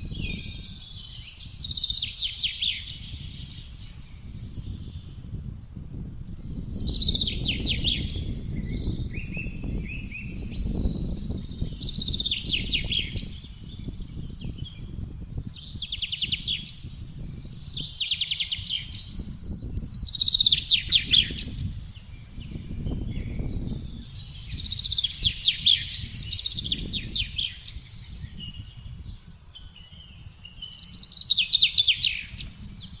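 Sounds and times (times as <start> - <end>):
gusting wind rumble: 0.0 - 33.0
songbird trilled phrases: 17.6 - 21.7, 29.6 - 33.0.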